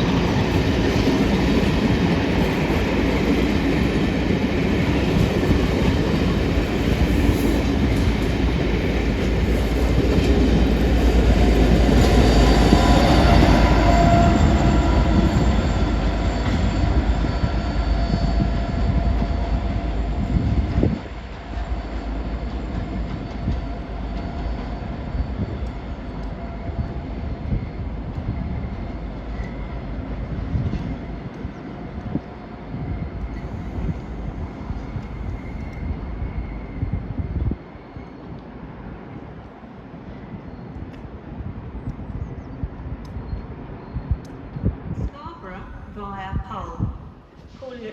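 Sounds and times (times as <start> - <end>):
train wheels rumbling: 0.0 - 45.9
faint high wheel squeal: 12.0 - 20.6, 21.6 - 29.8.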